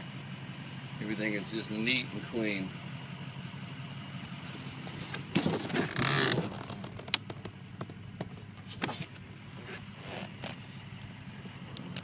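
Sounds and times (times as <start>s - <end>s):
rustling scrape: 4.8s - 6.8s, 8.6s - 10.4s.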